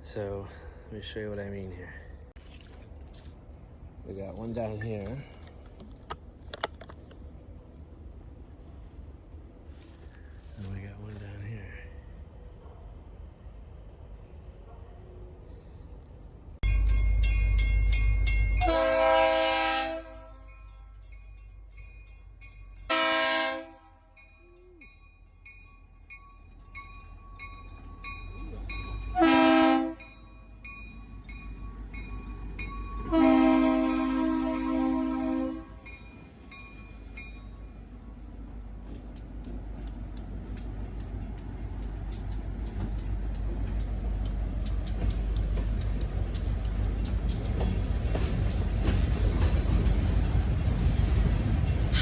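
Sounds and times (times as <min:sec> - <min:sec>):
diesel train rumbling: 0:00.0 - 0:52.0
crossing warning bell dinging: 0:16.6 - 0:38.0
locomotive air horn blasts: 0:18.6 - 0:20.5, 0:22.9 - 0:24.1, 0:29.1 - 0:30.0, 0:33.0 - 0:35.9
light regular ticking: 0:38.1 - 0:49.0.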